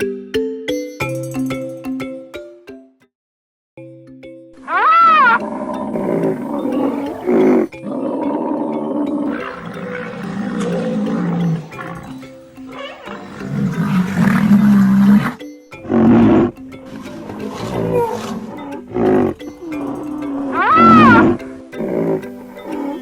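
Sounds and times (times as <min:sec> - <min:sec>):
rhinoceros calling: 0:04.6 - 0:23.0.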